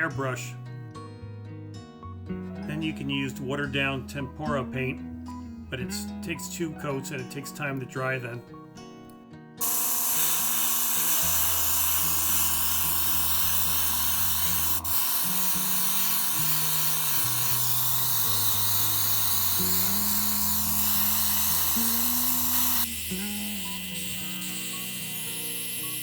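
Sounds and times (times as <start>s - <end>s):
background music: 0.0s - 26.0s
airbrush spraying hiss: 9.6s - 26.0s
compressor motor buzz: 9.6s - 26.0s.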